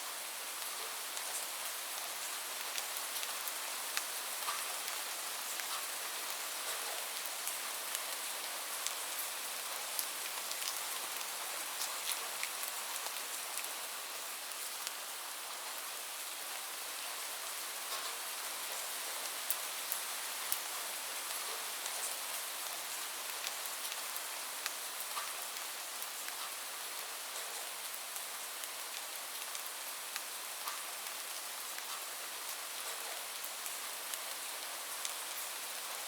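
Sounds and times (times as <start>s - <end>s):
raindrops ticking on a surface: 0.5s - 15.8s, 17.0s - 36.0s.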